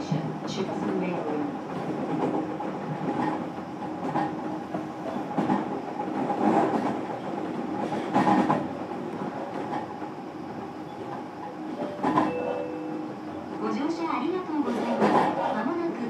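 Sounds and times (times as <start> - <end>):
train running rumble: 0.0 - 16.0
wheels clacking over rail joints: 0.1 - 10.0, 11.1 - 15.8.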